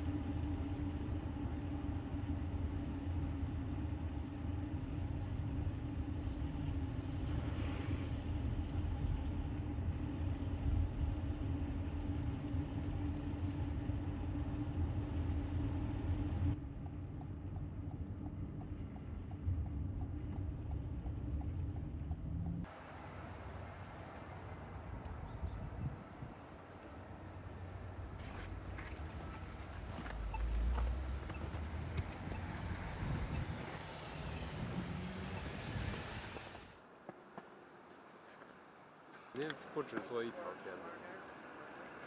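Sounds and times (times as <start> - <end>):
vehicle engine running: 0.0 - 37.4.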